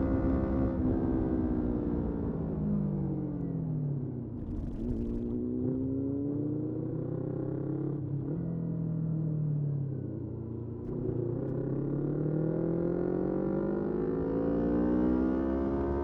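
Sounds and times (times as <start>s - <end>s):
motorcycle engine accelerating: 4.4s - 6.0s.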